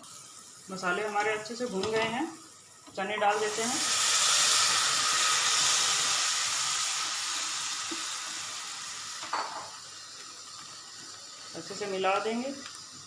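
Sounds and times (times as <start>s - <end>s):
food sizzling in hot pan: 0.0s - 13.0s.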